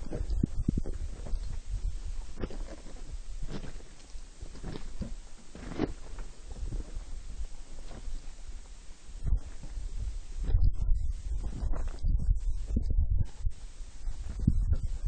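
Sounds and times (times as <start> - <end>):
footsteps on a trail: 0.0 - 8.7
wind on the microphone: 0.0 - 15.0.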